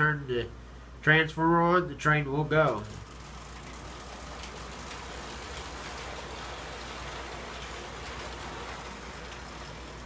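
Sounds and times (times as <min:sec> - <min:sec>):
toy train wheels rattling: 0:02.6 - 0:10.0.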